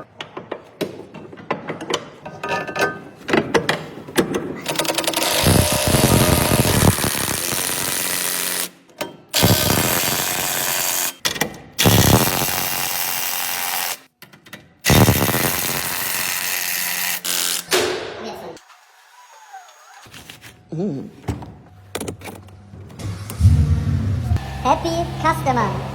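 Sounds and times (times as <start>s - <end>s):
power tool driving fastener: 4.6s - 8.8s, 9.4s - 11.2s, 11.8s - 14.1s, 14.8s - 17.8s, 18.6s - 20.4s.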